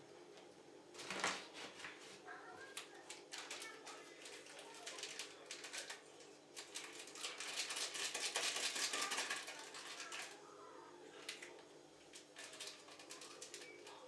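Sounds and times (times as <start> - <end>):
small clicks and rustling: 2.6 - 10.4, 11.2 - 14.0.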